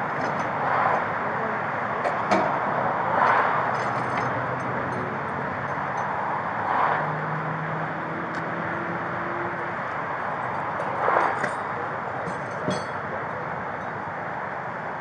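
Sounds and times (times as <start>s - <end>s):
cars passing: 0.0s - 15.0s
road traffic rush: 0.0s - 15.0s.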